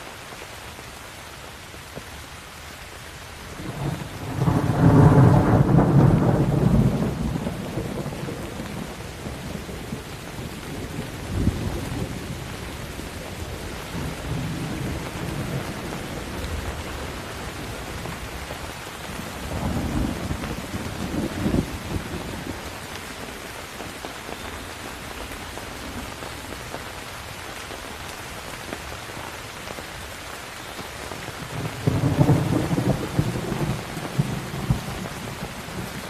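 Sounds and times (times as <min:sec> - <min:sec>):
steady rain: 0:00.0 - 0:36.0
rolling thunder: 0:03.6 - 0:12.5, 0:19.1 - 0:22.6, 0:31.5 - 0:36.0.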